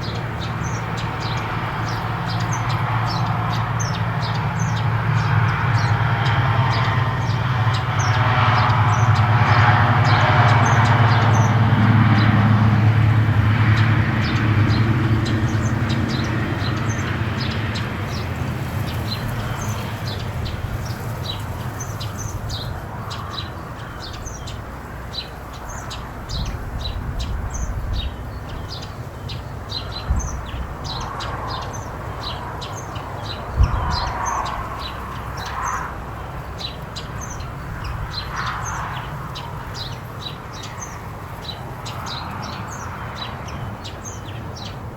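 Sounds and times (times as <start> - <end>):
small birds chirping: 0.0 - 44.9.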